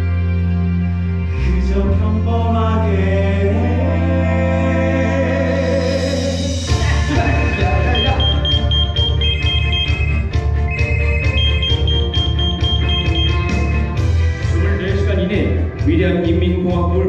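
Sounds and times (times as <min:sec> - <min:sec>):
sustained accompaniment: 0:06.8 - 0:14.4.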